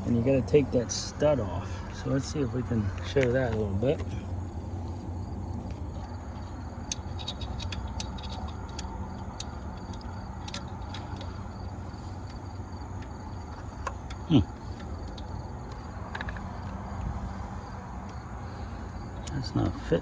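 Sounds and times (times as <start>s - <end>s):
low background rumble: 0.0s - 20.0s
metallic clicks of a wrench: 6.0s - 17.1s, 18.9s - 20.0s.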